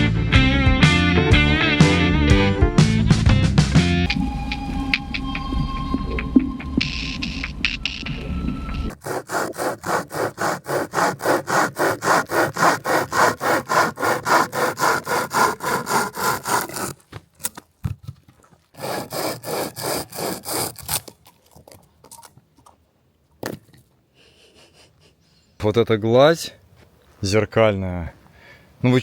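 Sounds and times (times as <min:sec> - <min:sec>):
hand saw cutting wood: 0:08.9 - 0:17.0, 0:18.8 - 0:21.3.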